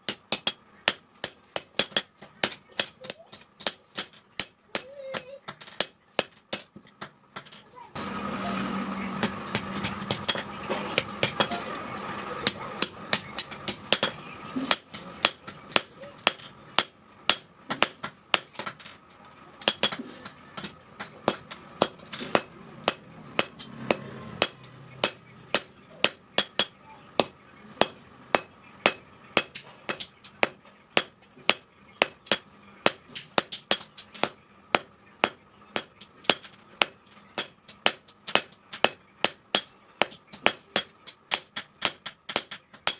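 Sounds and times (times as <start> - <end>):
hammer striking steel on anvil: 9.2 - 11.8, 12.4 - 19.0, 19.6 - 42.9.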